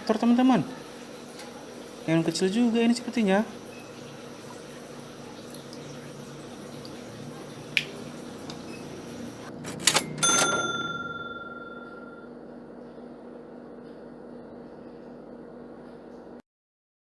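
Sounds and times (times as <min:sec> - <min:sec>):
bell-like ding: 0:10.1 - 0:12.3.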